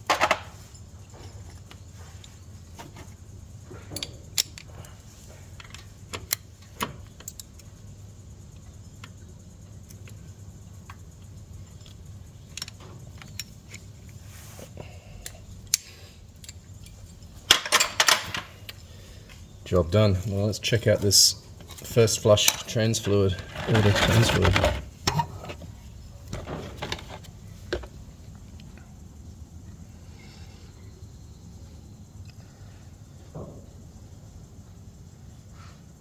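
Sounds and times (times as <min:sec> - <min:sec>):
metal tools clinking: 0:16.4 - 0:18.4, 0:21.7 - 0:25.6.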